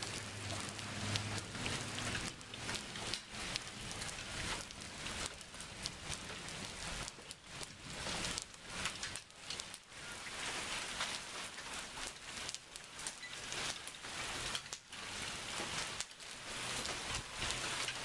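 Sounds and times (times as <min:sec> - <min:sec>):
rain falling steadily: 0:00.0 - 0:18.0
raindrops ticking close by: 0:00.0 - 0:18.0.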